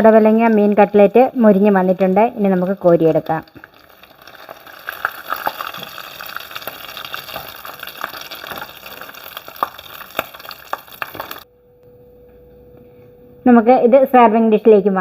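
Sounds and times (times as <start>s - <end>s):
food deep-frying in oil: 0.0s - 11.4s.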